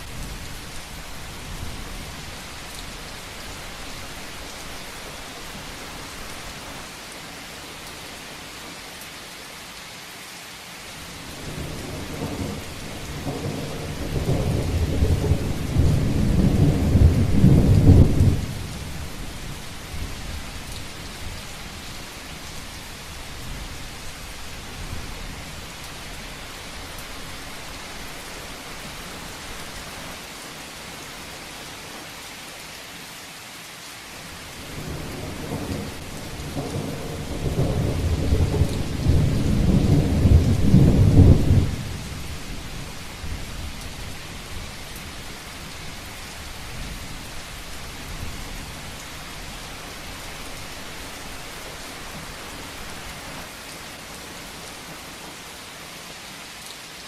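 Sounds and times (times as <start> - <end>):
rain pattering on a roof: 0.0 - 57.0
rolling thunder: 11.3 - 20.3, 34.6 - 44.2.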